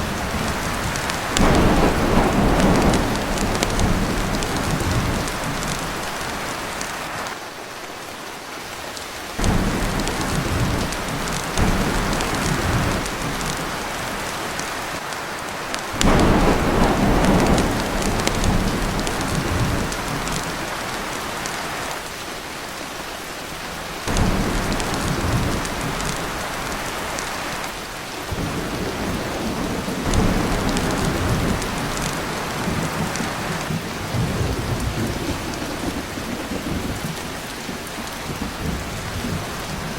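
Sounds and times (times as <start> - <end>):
thunder rolling: 0.0 - 6.5, 9.4 - 14.6, 16.0 - 20.8, 24.1 - 27.4, 28.3 - 37.3
heavy rain on a tin roof: 0.0 - 39.9.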